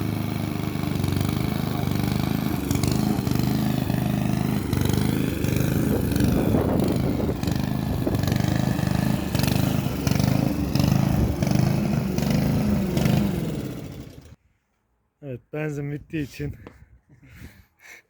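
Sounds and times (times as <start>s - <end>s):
lawn mower engine running: 0.0s - 14.4s.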